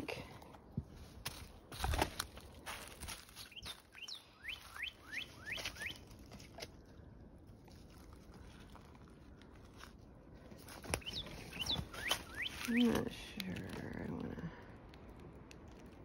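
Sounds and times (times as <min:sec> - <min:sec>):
bird chirping: 0:03.4 - 0:06.2, 0:10.8 - 0:13.1
sharp crackles: 0:10.6 - 0:16.0.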